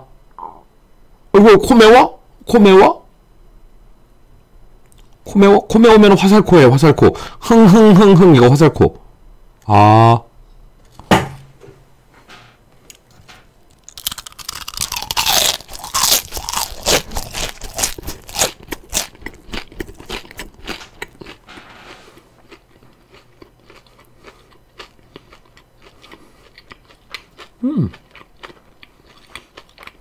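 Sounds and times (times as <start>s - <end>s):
crunchy chewing of fried chicken: 13.6s - 30.0s.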